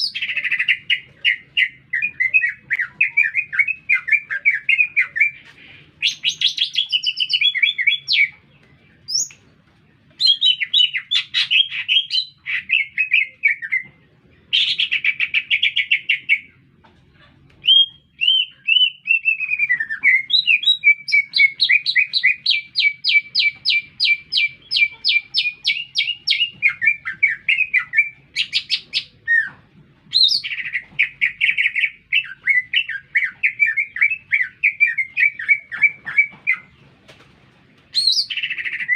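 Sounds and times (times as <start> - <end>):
bird singing trills and whistles: 0.0 - 5.4, 6.0 - 8.4, 9.1 - 9.4, 10.2 - 16.6, 17.6 - 36.8, 37.9 - 38.9.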